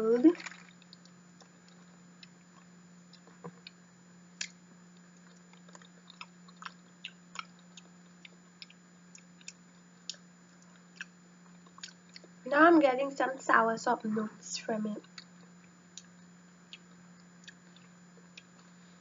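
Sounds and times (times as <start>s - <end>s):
faint low hum: 0.0s - 19.0s
wet chewing clicks and smacks: 0.5s - 3.8s, 4.4s - 12.4s, 15.0s - 18.7s.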